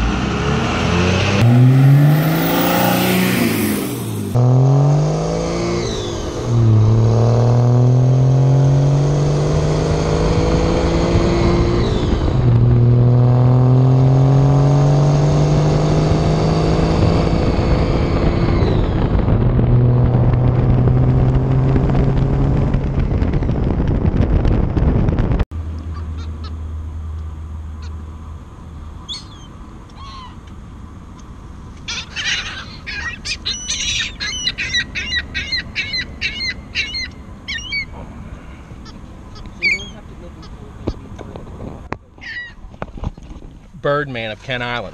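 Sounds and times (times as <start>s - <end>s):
diesel pickup accelerating: 0.0s - 44.9s
gulls calling: 25.8s - 26.6s, 29.0s - 30.5s, 31.8s - 40.7s, 42.1s - 42.7s.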